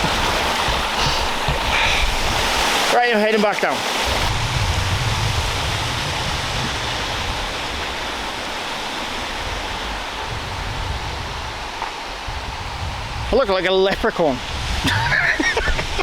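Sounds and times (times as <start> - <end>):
waterfall roaring: 0.0 - 16.0
low rumble: 4.1 - 8.6.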